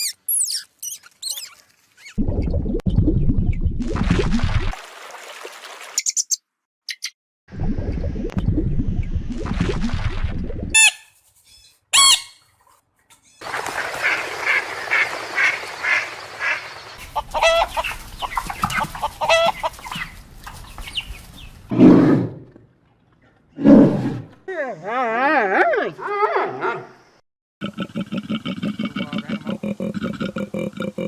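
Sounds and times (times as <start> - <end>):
high fowl calls: 12.0 - 12.4, 13.4 - 20.2
long pitched fowl calls: 12.0 - 12.4, 13.4 - 20.2
rapid clucking: 13.4 - 21.3.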